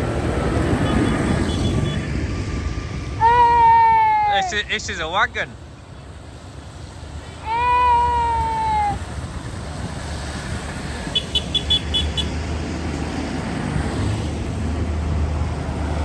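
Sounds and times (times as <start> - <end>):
engine rumble: 0.0 - 16.0
vehicle horn: 0.8 - 2.1, 11.1 - 12.3.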